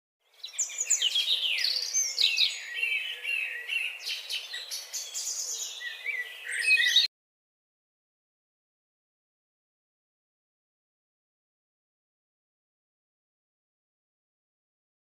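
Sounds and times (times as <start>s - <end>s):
birds chirping and singing: 0.2s - 7.1s.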